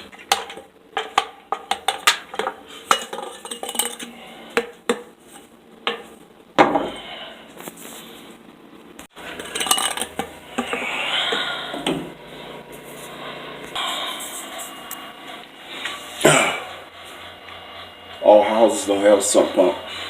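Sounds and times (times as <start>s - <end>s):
hard objects clinking together: 0.1s - 5.1s, 9.3s - 10.9s.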